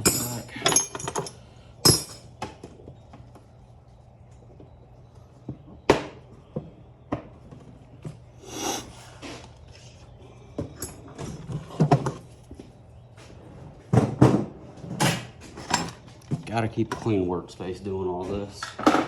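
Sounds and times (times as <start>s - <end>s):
clatter of handling tools: 0.0s - 2.3s
tools clinking and clunking: 0.0s - 2.6s, 10.6s - 12.2s, 15.1s - 17.3s
steady low hum: 0.0s - 18.3s.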